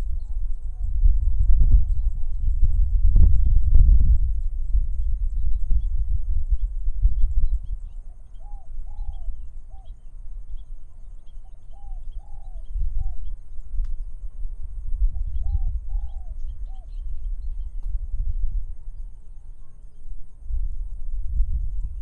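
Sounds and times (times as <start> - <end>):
small birds chirping: 0.0 - 14.2, 15.0 - 20.5
wind rumble on microphone: 0.0 - 22.0
dove cooing: 8.1 - 10.0, 11.4 - 13.3, 15.1 - 17.0.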